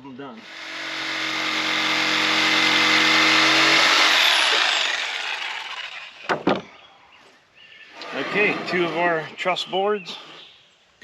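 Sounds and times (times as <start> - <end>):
circular saw cutting wood: 0.4 - 6.6, 7.9 - 10.4.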